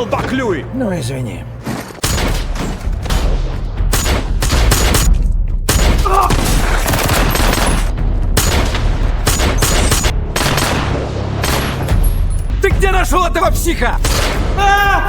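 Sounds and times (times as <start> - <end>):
rapid gunshots: 2.0 - 12.0, 14.0 - 14.6.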